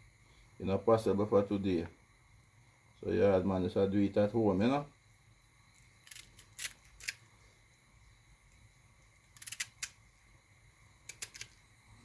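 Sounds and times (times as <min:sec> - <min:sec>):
sharp clicks and scrapes: 0:05.8 - 0:07.2, 0:09.3 - 0:10.0, 0:11.1 - 0:11.6.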